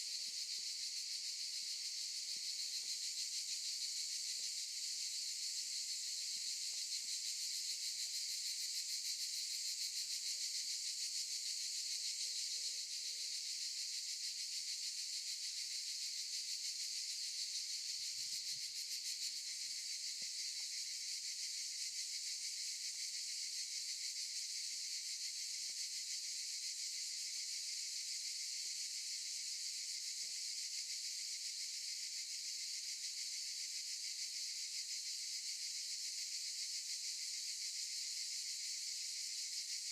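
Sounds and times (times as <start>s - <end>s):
cicadas buzzing: 0.0s - 9.9s, 14.3s - 30.9s, 36.5s - 39.8s.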